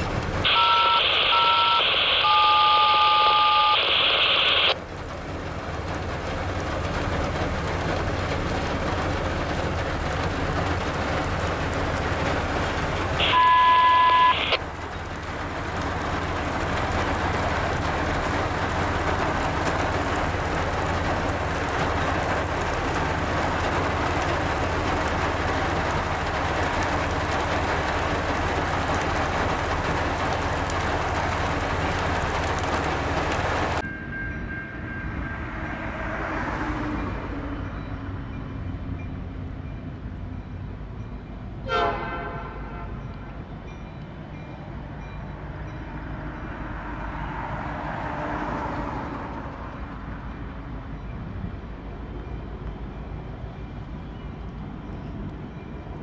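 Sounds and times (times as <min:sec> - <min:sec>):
steady rain: 0:00.0 - 0:33.8, 0:44.8 - 0:50.9
electronic tones: 0:00.5 - 0:04.8, 0:13.2 - 0:14.6.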